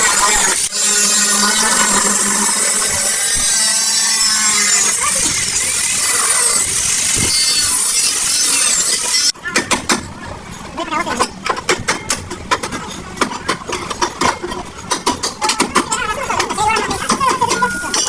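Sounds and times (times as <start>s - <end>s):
power tool grinding metal: 0.0s - 9.3s.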